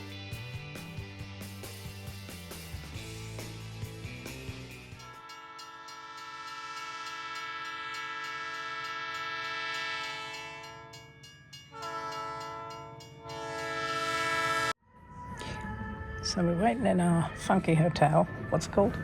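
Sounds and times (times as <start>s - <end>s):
train horn blasts: 5.0s - 14.8s.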